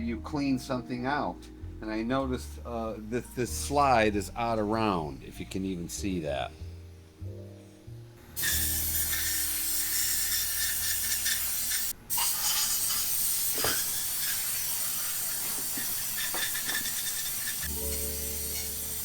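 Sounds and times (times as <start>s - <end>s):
air blow gun hissing: 8.4s - 19.0s.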